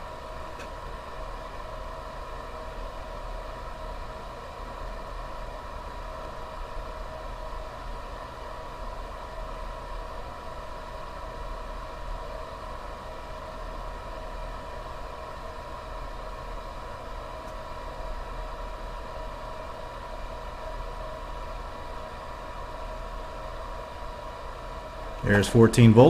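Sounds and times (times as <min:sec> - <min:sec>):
electrical hum and hiss: 0:00.0 - 0:26.0.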